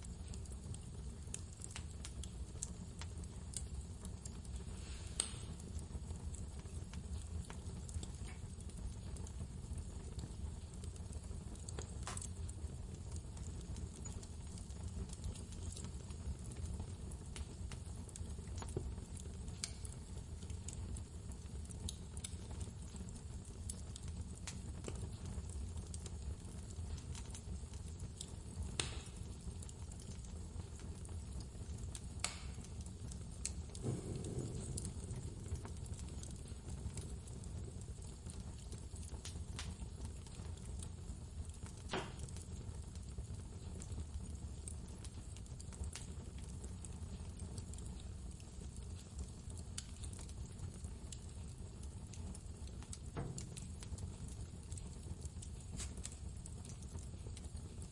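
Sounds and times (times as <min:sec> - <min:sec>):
fire popping: 0:00.0 - 0:57.9
wood fire crackling: 0:00.0 - 0:57.9
blizzard wind rumbling: 0:33.8 - 0:35.7.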